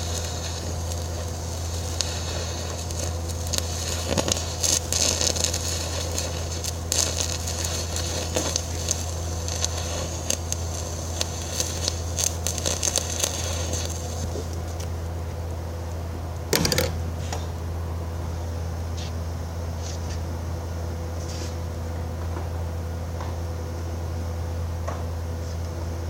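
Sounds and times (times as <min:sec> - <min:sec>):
welding arc crackling and spitting: 0:00.0 - 0:15.1.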